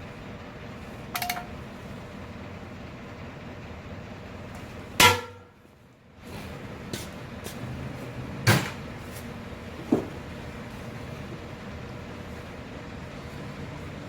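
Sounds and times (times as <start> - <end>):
steady background hum: 0.0 - 14.0
metallic knocks and clanks: 1.2 - 1.6.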